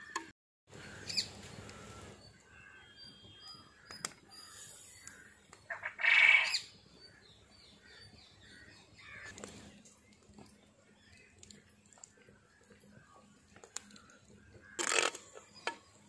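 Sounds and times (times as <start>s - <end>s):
faint bird chirps: 0.7s - 9.3s
loud bird call: 4.4s - 6.7s.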